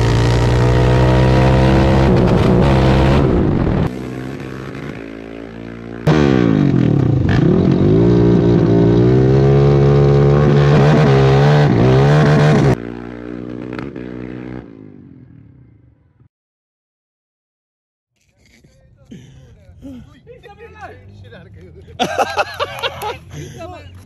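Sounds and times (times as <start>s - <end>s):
quad engines at full throttle: 0.0s - 15.9s.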